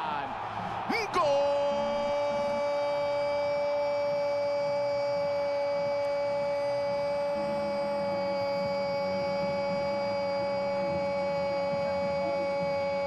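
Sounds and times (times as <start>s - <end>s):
electronic drone of held tones: 4.9s - 13.0s.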